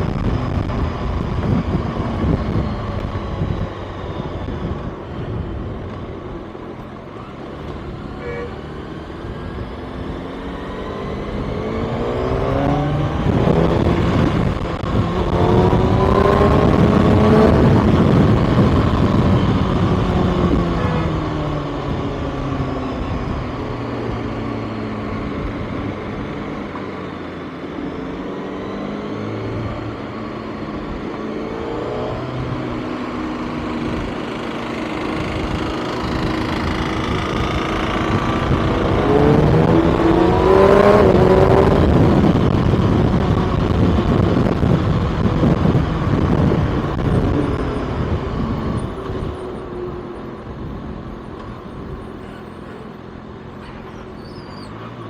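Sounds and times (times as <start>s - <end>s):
wind and road noise: 0.0s - 55.0s
motorcycle engine running: 32.6s - 52.9s.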